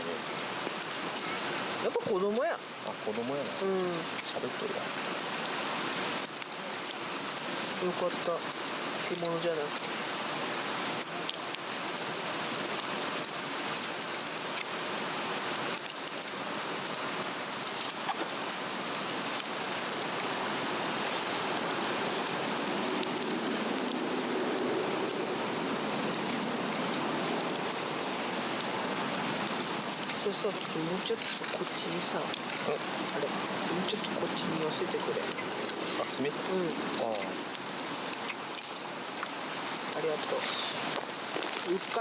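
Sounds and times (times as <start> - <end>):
faint crackles of burning log: 0.0 - 42.0.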